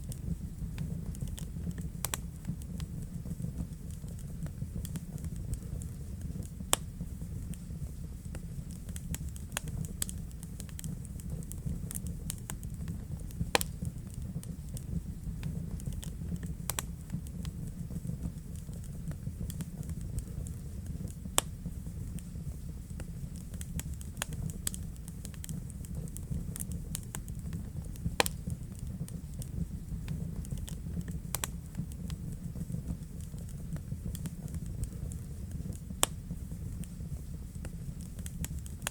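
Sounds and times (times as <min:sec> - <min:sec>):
flames rumbling: 0:00.0 - 0:38.9
wood fire crackling and popping: 0:00.0 - 0:38.9
loud sharp snaps: 0:13.6 - 0:13.8, 0:28.2 - 0:28.4.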